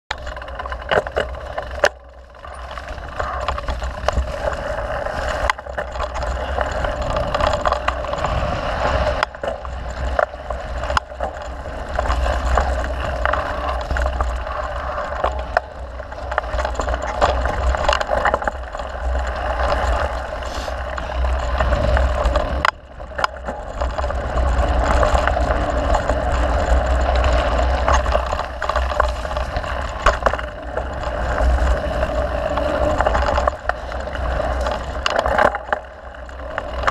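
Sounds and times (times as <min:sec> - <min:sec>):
bike rattling over bumps: 0:00.1 - 0:36.9
bike tyres rumbling on dirt: 0:00.1 - 0:36.9
wind: 0:00.1 - 0:36.9.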